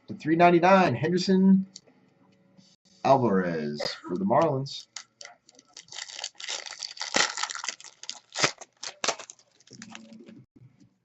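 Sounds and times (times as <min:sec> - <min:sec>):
cards and plastic wrapping rustling: 0:04.7 - 0:10.3.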